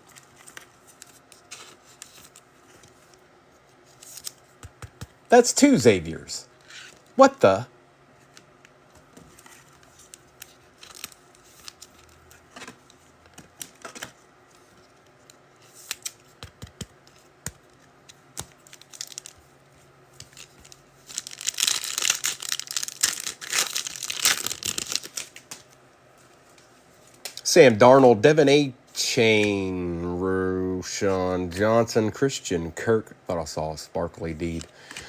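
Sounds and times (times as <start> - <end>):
cards clicking and tapping: 4.2 - 5.2, 15.3 - 19.4
foil wrapper tearing and crinkling: 10.1 - 12.2, 18.6 - 19.4, 20.2 - 25.5.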